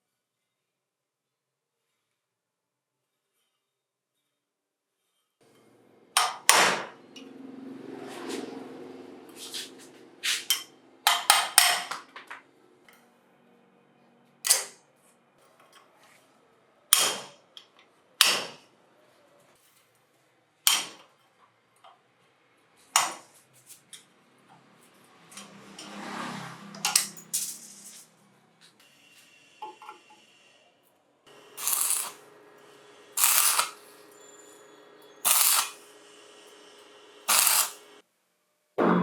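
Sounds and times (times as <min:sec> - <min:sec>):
hammer striking metal: 0:06.2 - 0:07.3, 0:10.2 - 0:12.1, 0:16.9 - 0:17.4, 0:31.3 - 0:36.0, 0:37.3 - 0:37.9.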